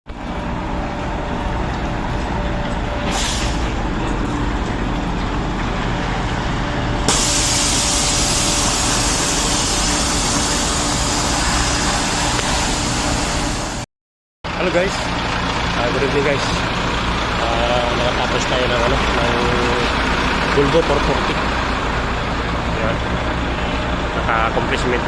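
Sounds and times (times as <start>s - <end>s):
diesel truck engine running: 0.1s - 13.8s, 14.4s - 25.0s
air hissing: 3.0s - 3.8s, 7.1s - 13.8s.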